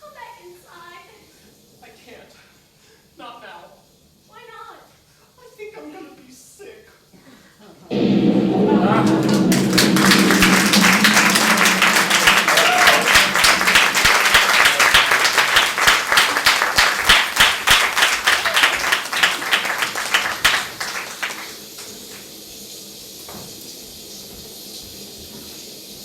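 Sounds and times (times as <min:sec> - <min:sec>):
audience applauding: 0:08.8 - 0:22.3.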